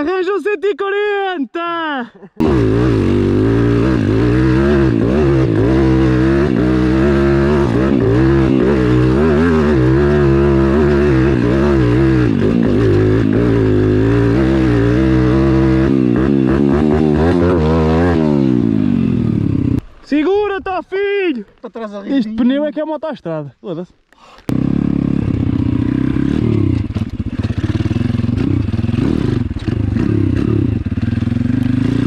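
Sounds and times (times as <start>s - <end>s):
motorbike engine revving: 2.4s - 19.9s, 24.5s - 32.0s.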